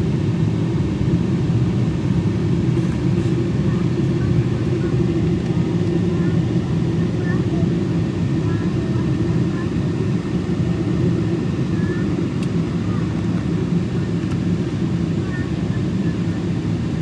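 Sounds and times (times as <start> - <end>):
airliner cabin roar: 0.0 - 17.0.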